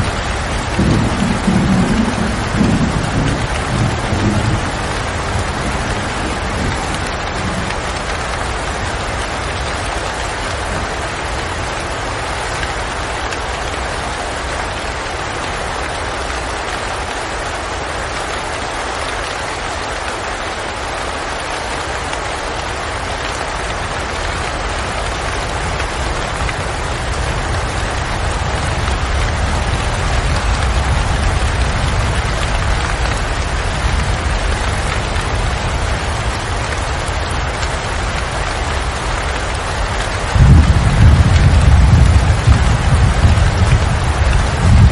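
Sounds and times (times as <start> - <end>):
thunder rumble: 0.0 - 9.5, 39.4 - 44.9
rain hissing: 0.0 - 44.9.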